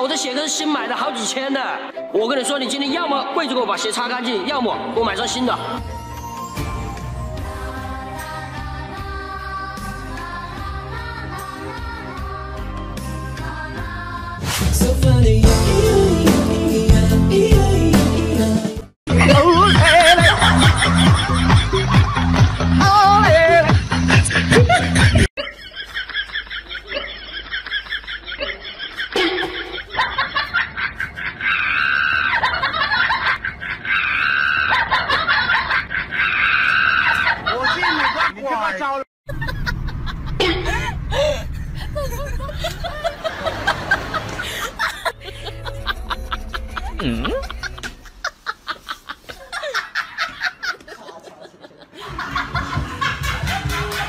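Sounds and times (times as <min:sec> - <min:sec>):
background music: 0:00.0 - 0:25.3, 0:43.4 - 0:48.6, 0:52.0 - 0:54.0
people laughing: 0:19.2 - 0:54.0.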